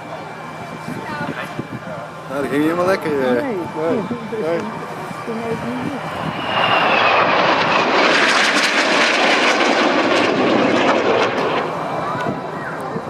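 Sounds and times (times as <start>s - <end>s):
jets flying past: 5.1s - 13.0s.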